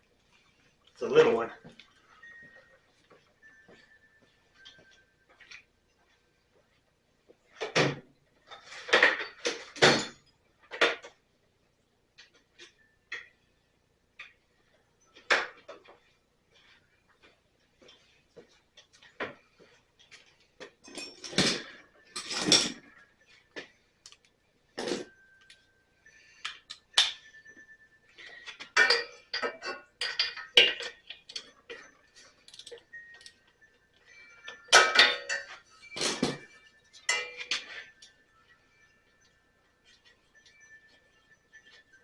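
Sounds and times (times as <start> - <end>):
metal tools clinking: 20.6 - 23.0, 28.2 - 33.5, 34.1 - 38.2.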